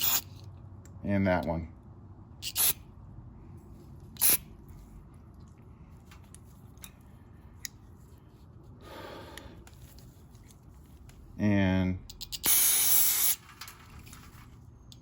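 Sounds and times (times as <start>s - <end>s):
aerosol spray hisses: 12.5s - 13.4s.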